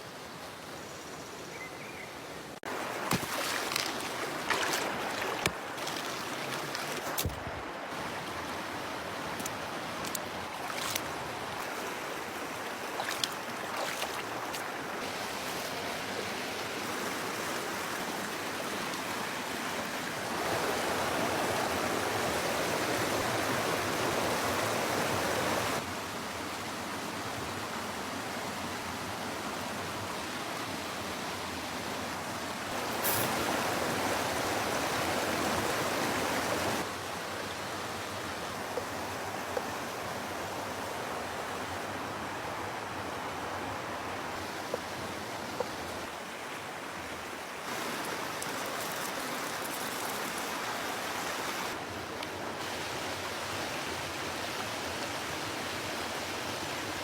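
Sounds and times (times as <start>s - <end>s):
campfire cooking hiss: 47.6s - 51.8s.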